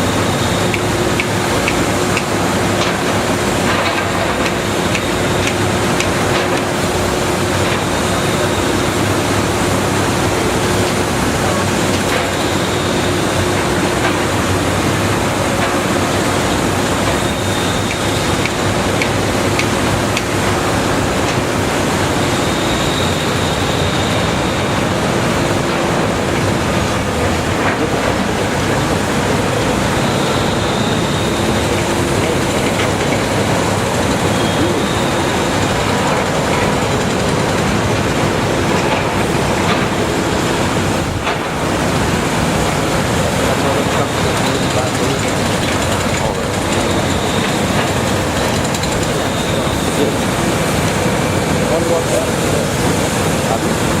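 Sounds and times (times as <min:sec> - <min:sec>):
faint high whine: 0:00.0 - 0:53.8
excavator engine and hydraulics: 0:00.0 - 0:54.0.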